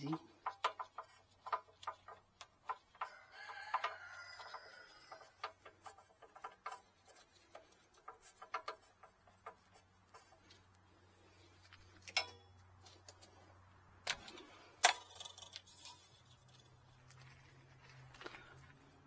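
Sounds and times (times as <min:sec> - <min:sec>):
rooster crowing: 0:03.0 - 0:05.4.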